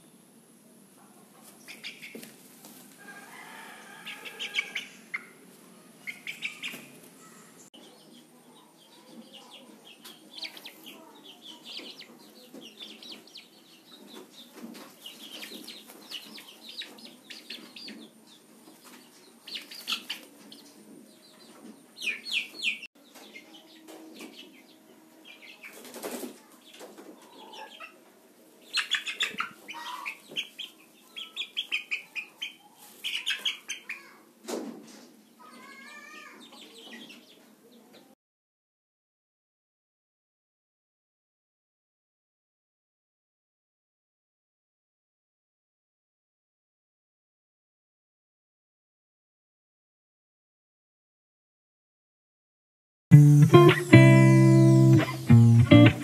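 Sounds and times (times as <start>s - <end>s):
chicks peeping: 1.2s - 38.0s, 53.1s - 56.0s
hen clucking: 4.0s - 7.0s, 28.8s - 33.9s, 53.2s - 56.0s.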